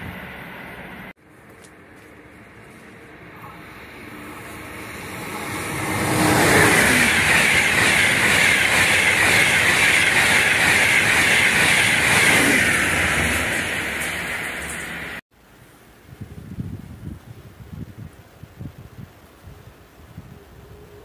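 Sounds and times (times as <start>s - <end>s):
high-speed train rushing past: 0.0s - 1.2s, 1.8s - 15.2s.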